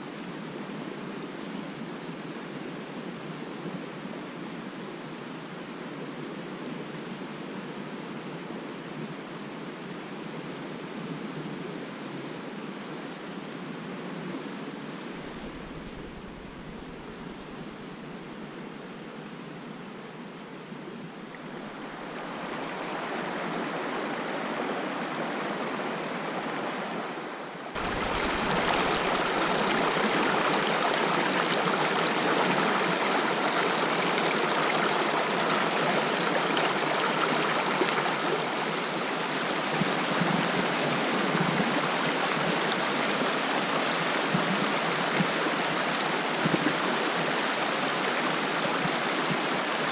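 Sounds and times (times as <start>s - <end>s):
stream water rushing: 14.8s - 49.9s.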